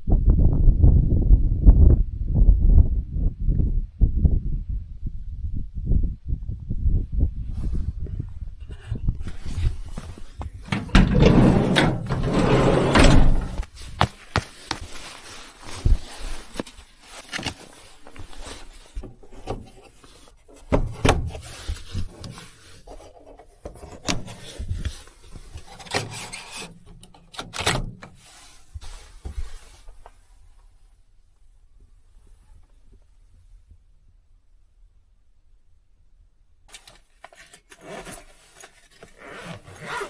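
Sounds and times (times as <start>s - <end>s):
objects rubbing and scraping: 10.6s - 13.7s.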